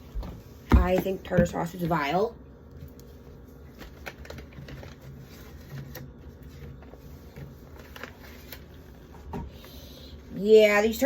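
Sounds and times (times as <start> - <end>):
low steady hum: 0.0 - 11.0
packaging clicks and rustles: 3.7 - 8.8.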